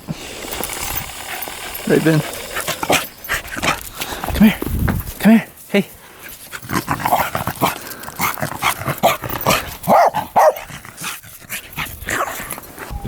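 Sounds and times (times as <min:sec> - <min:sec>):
dog yipping and whining: 0:12.1 - 0:13.0.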